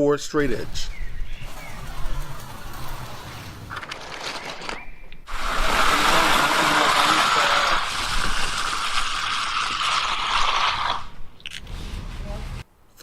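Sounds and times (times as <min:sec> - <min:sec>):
wet concrete sloshing and sliding: 0:05.3 - 0:11.2.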